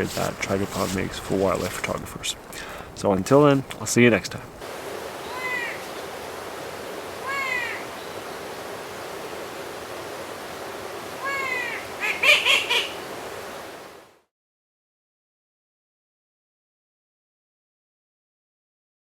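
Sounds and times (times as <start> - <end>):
rain hissing in woodland: 0.0 - 14.3
bird calling: 5.1 - 9.4, 10.9 - 13.3.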